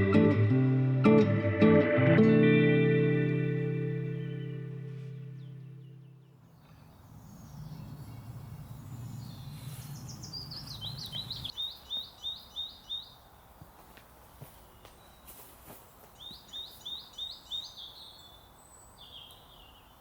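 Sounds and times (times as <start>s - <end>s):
background music: 0.0s - 5.6s.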